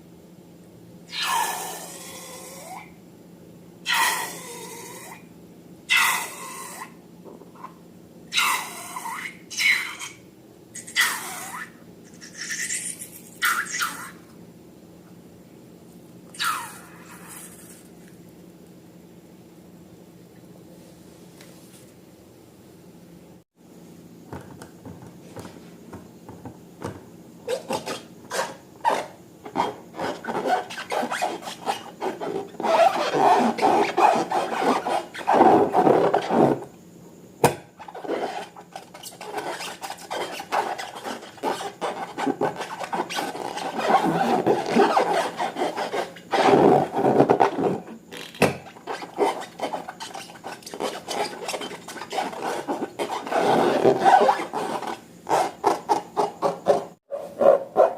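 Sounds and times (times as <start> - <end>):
hands rubbing and scraping slime: 37.8 - 47.7, 48.7 - 56.8.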